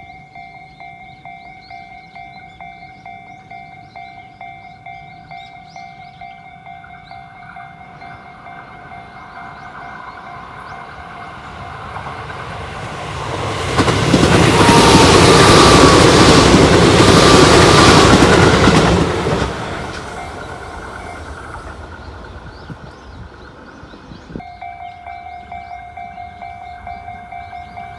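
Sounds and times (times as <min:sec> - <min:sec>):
train wheels rolling on rails: 0:00.0 - 0:27.9.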